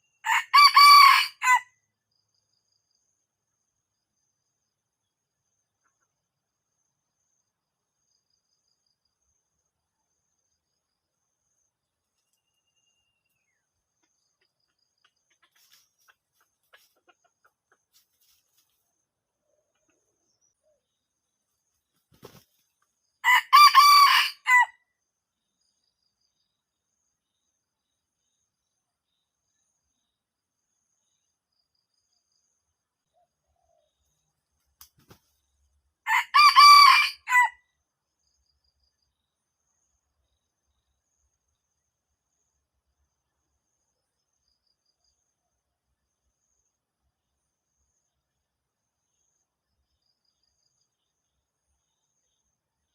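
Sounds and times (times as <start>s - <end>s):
thin high insect or bird tones: 0.0s - 23.4s, 24.0s - 52.9s
rooster crowing: 0.2s - 1.7s, 23.2s - 24.8s, 36.1s - 37.6s.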